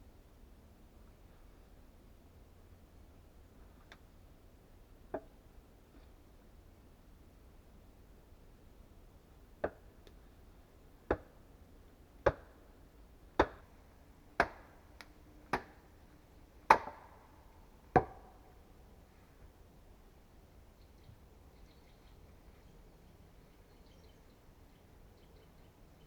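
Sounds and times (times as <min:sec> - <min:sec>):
axe chopping wood: 0:11.1 - 0:11.3, 0:12.3 - 0:12.6, 0:13.4 - 0:13.7, 0:14.4 - 0:14.8, 0:15.5 - 0:15.8, 0:16.7 - 0:17.2, 0:18.0 - 0:18.4.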